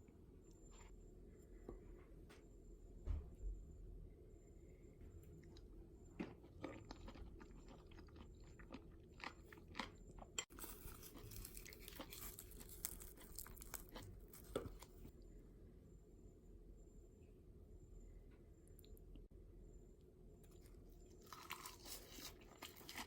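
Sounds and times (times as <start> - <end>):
person chewing and crunching: 5.4 - 15.1, 20.5 - 23.0.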